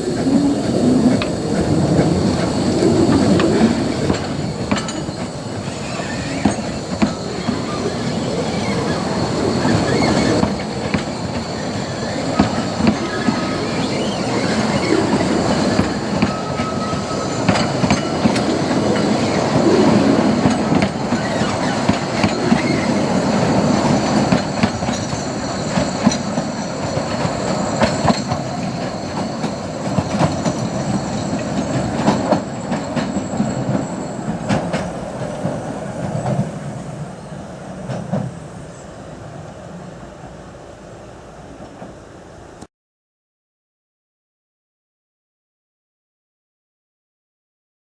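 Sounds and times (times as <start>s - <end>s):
train wheels rumbling: 0.0s - 42.6s
wheel flange squeal: 0.2s - 36.4s.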